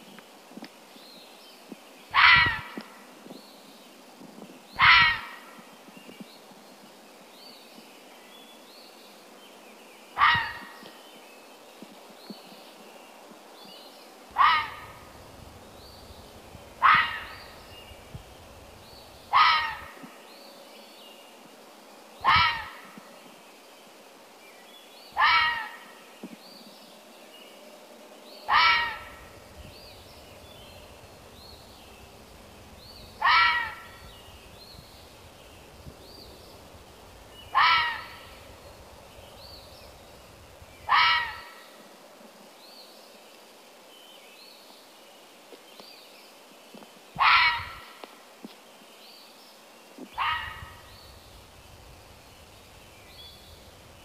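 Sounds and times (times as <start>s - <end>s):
small birds chirping: 0.0s - 21.4s, 28.2s - 54.0s
crow cawing: 4.8s - 5.4s, 14.4s - 15.0s, 16.8s - 17.5s, 19.3s - 20.0s, 25.2s - 25.8s, 28.5s - 29.3s, 33.2s - 34.0s, 37.5s - 38.4s, 40.9s - 41.6s, 47.2s - 47.8s.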